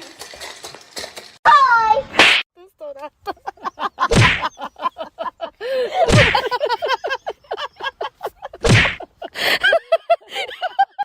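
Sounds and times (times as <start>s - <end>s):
loud sharp whacks: 2.1s - 2.4s, 4.1s - 4.4s, 6.1s - 6.4s, 8.6s - 9.0s.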